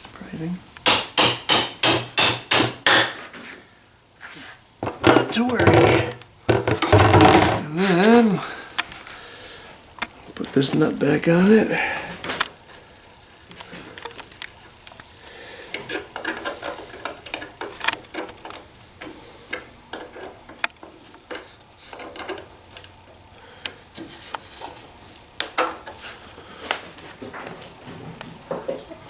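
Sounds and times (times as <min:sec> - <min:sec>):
metal clicks taps and scraping: 0:15.7 - 0:23.0.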